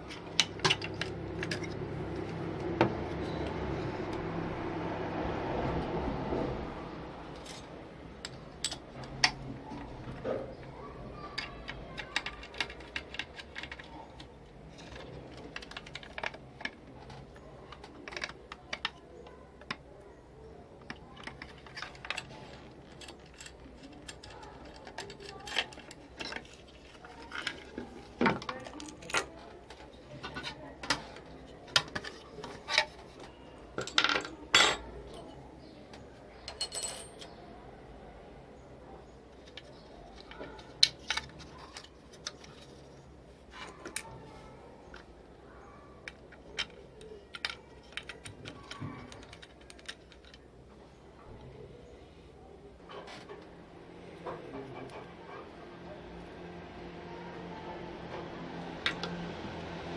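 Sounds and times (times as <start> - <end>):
clicks and taps of small parts: 11.3 - 19.0.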